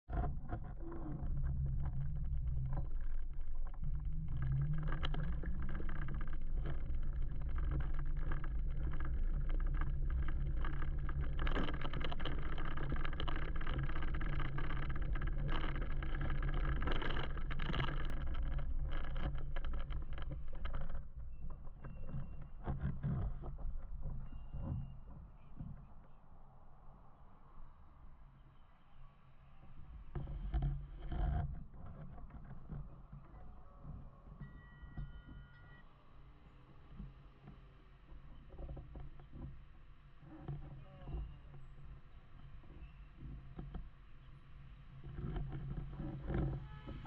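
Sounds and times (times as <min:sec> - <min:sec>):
wind and road rumble: 0:00.3 - 0:21.4.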